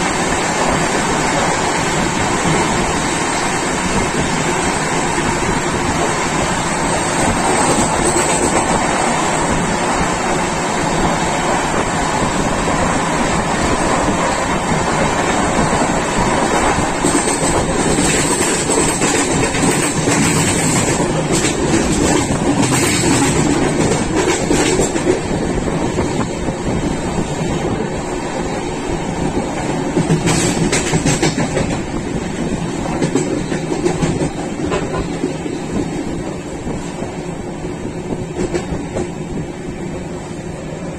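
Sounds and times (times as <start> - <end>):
train carriage rumble: 0.0 - 40.9
wheels clicking over rail joints: 13.6 - 26.8, 29.5 - 36.8.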